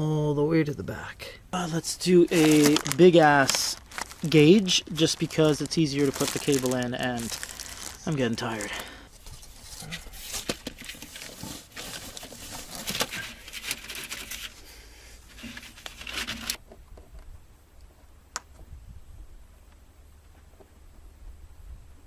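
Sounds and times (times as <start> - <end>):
plastic conduit crinkling: 1.7 - 14.6, 15.3 - 17.1.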